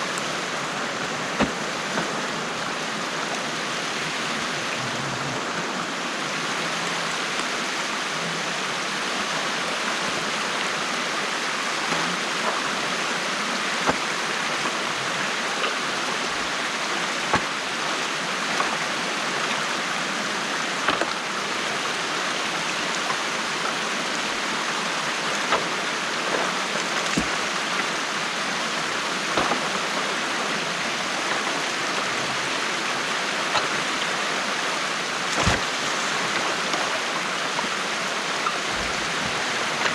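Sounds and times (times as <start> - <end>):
stream water rushing: 0.0 - 39.9
sharp knocks and splashes: 0.1 - 3.4, 13.7 - 19.8, 20.7 - 21.4, 25.1 - 28.2, 28.9 - 39.9.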